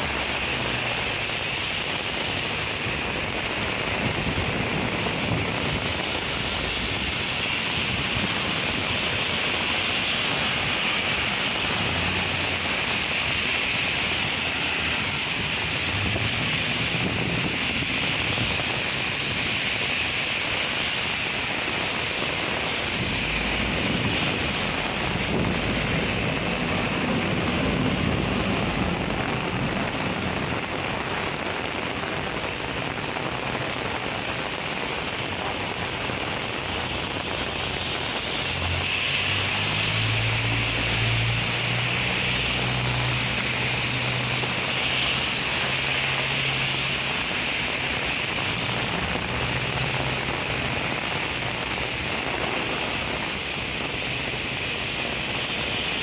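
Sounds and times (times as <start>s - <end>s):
cars driving through water: 0.0s - 56.0s
heavy rain on wet street: 0.0s - 56.0s
deep rumble: 22.6s - 31.1s.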